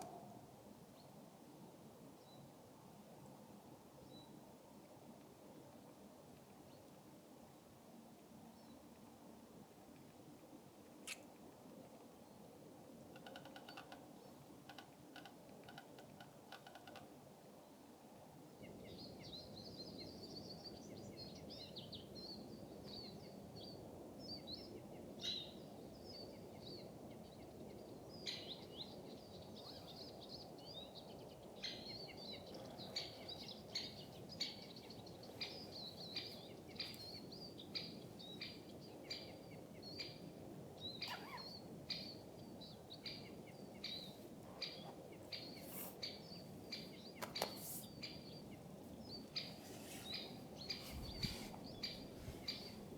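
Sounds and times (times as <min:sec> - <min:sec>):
low outdoor hiss: 0:00.0 - 0:52.9
small birds chirping: 0:26.2 - 0:52.9.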